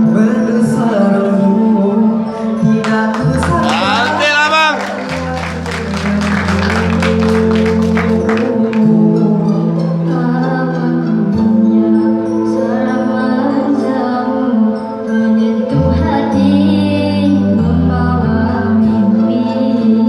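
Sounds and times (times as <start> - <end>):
instrumental backing music: 2.1 - 13.3
person singing: 2.9 - 9.0.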